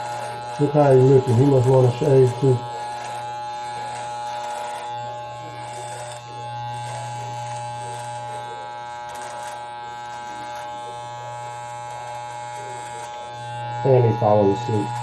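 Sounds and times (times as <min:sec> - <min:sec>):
electric shaver buzzing: 0:00.0 - 0:15.0.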